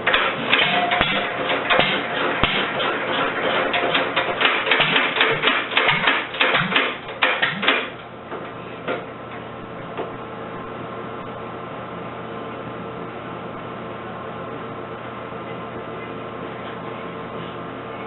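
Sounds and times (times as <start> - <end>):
engine clattering: 0.0 - 8.1
steady hum: 0.0 - 18.0.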